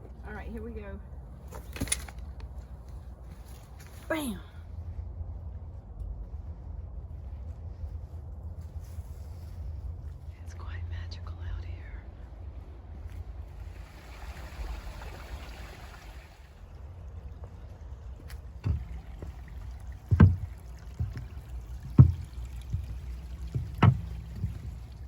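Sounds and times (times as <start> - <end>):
steady low rumble: 0.0 - 25.0
faint rushing water: 13.3 - 25.0
dull thumps of footsteps: 18.2 - 25.0.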